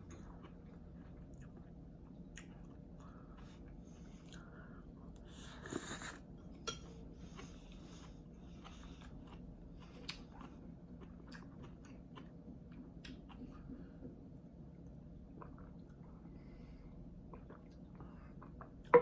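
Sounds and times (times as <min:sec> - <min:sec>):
chewing noodles: 0:07.2 - 0:14.0.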